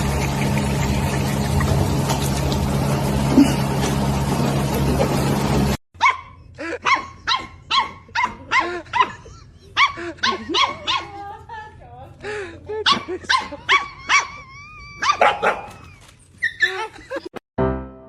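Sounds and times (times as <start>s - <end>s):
dog barking: 6.0s - 9.2s, 9.8s - 11.2s, 12.8s - 14.4s, 15.0s - 15.8s.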